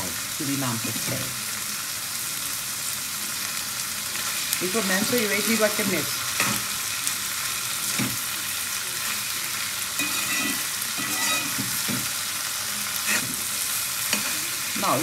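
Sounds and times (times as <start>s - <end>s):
food sizzling in a wok: 0.0s - 15.0s
metal spoon scraping a pan: 5.5s - 6.8s, 9.9s - 12.3s, 12.9s - 15.0s.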